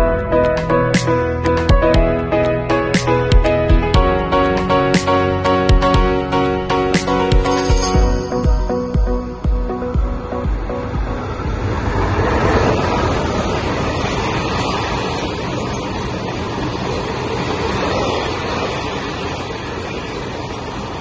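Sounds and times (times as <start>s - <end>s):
electric locomotive passing: 0.0s - 21.0s
wagon wheels running on rails: 11.5s - 21.0s.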